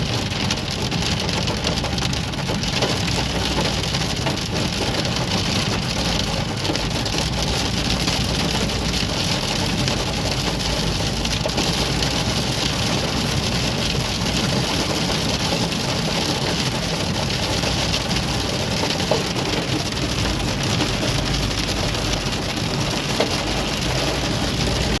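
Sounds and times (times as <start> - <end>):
car engine running: 0.0 - 25.0
heavy rain on a car: 0.0 - 25.0.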